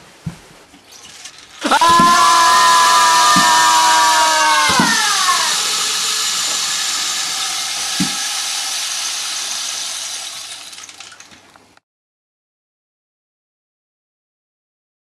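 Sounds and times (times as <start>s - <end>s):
whistling tones sliding down: 0.9s - 11.3s
loud rushing hiss: 1.0s - 11.3s.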